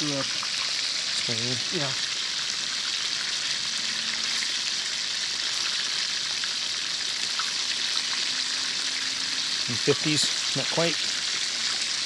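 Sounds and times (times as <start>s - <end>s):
chicken deep-frying in hot oil: 0.0s - 12.0s.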